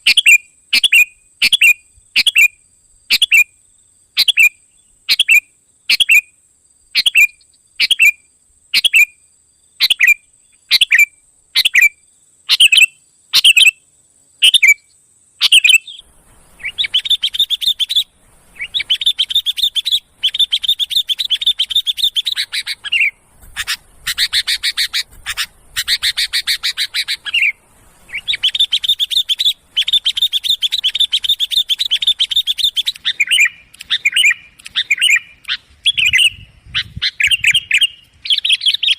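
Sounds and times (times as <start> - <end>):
bulbul calling: 9.8 - 13.8, 14.4 - 38.9
bird chattering runs: 15.4 - 38.9.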